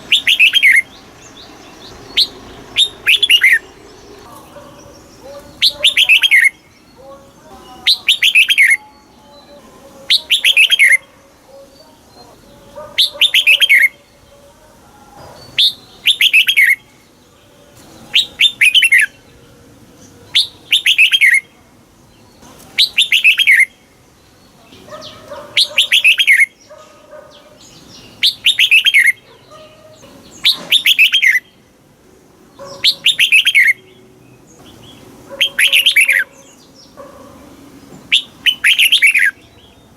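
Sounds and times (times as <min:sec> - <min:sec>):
bird singing falling notes: 0:00.0 - 0:07.1, 0:30.0 - 0:31.6.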